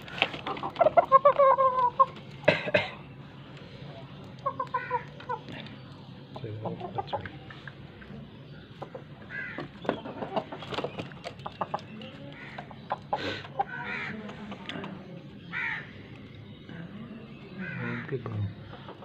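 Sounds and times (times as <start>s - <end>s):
chickens calling harshly: 0.0s - 3.2s, 4.2s - 8.0s, 8.6s - 14.7s, 15.4s - 16.1s, 17.5s - 19.0s.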